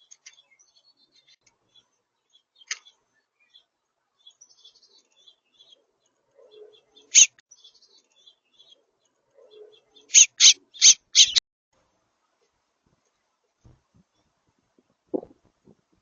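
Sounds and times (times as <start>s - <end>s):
short sharp bird calls: 9.5s - 11.4s.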